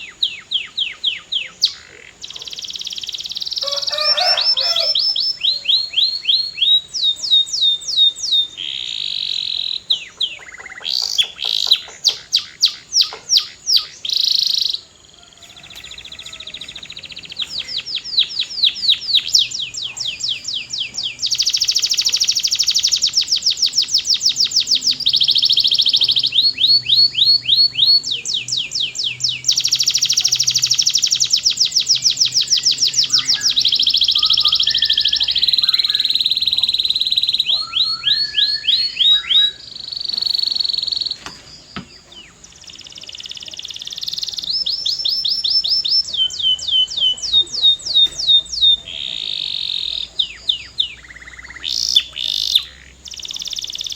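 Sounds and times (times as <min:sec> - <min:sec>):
canary singing trills: 0:00.0 - 0:53.9.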